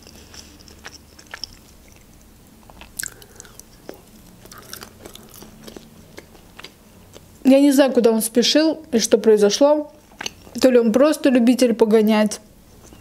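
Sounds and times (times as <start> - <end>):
chewing with wet mouth smacks: 0.0 - 7.3.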